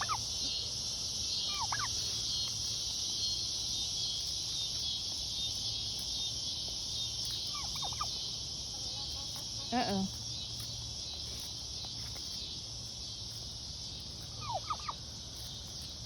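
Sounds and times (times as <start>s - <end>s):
turkey gobbling: 0.0s - 0.5s, 1.4s - 2.0s, 7.4s - 8.2s, 14.2s - 15.0s
insects chorus: 0.0s - 16.0s.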